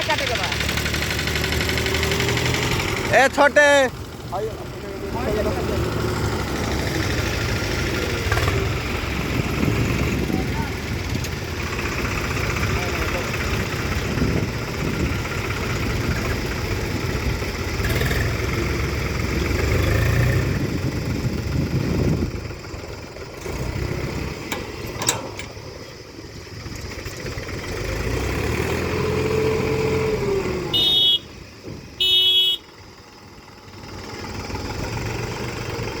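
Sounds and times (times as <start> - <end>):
tractor diesel engines running: 0.0 - 36.0
horn honks: 30.7 - 31.4, 32.0 - 32.7.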